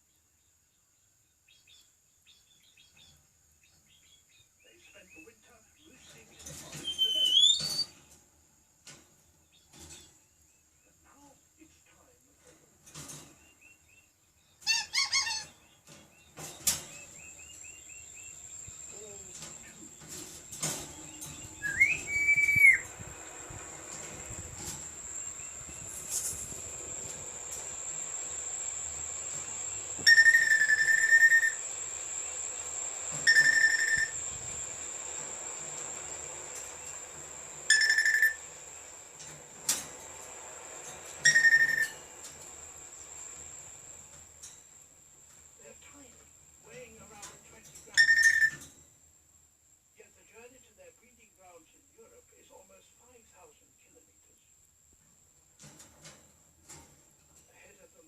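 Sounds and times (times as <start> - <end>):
parrot whistling: 6.8 - 7.9, 21.6 - 22.9, 30.0 - 31.6, 33.2 - 34.2, 37.7 - 38.4, 41.2 - 42.0, 48.0 - 48.6.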